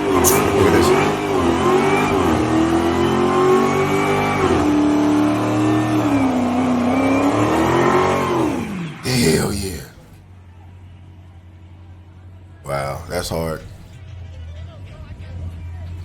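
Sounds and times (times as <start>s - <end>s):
car engine revving hard: 0.0s - 9.4s.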